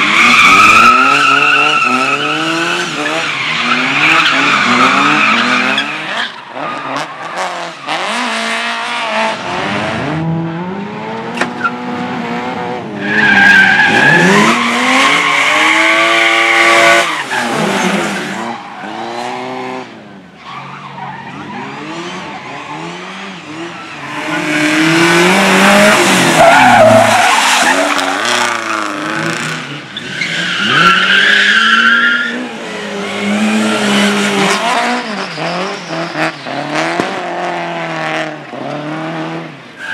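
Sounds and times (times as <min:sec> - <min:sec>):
car engine revving: 0:20.8 - 0:39.5.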